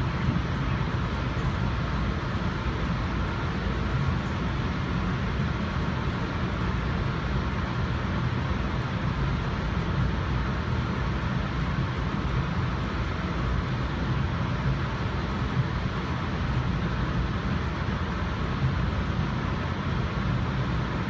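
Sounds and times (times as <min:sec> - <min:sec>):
hiss of running noise: 0:00.0 - 0:21.0.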